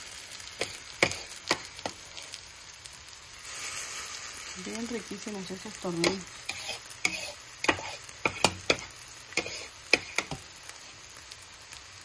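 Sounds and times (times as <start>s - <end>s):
fritters sizzling in hot oil: 0.0s - 12.0s.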